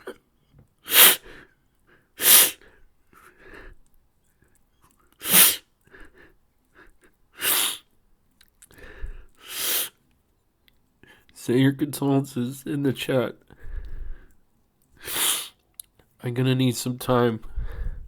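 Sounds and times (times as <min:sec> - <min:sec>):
person sobbing and sniffing: 0:00.0 - 0:00.2, 0:00.8 - 0:01.4, 0:02.2 - 0:02.7, 0:05.2 - 0:05.6, 0:06.8 - 0:07.8, 0:09.4 - 0:09.9, 0:15.0 - 0:15.6
soft breathing: 0:08.7 - 0:09.7, 0:13.5 - 0:14.4, 0:17.4 - 0:18.0.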